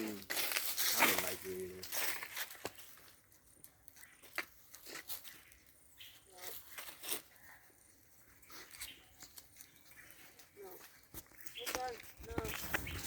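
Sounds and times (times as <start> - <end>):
faint crackling and rustling: 0.0 - 13.0.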